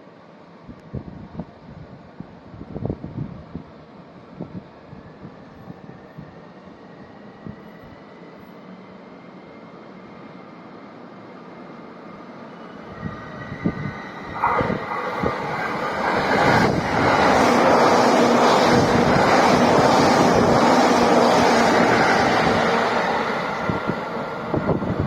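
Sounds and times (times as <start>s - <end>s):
electric train passing: 5.0s - 25.0s.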